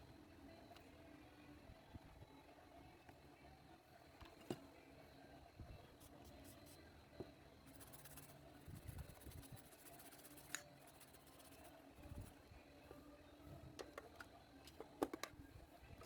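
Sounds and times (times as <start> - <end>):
light handling noises: 12.0 - 16.0.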